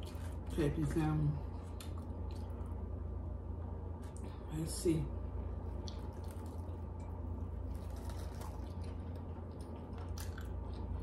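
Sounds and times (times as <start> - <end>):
chewing and wet mouth sounds: 0.0 - 0.6, 1.5 - 2.8, 5.7 - 11.0
steady low hum: 0.0 - 11.0.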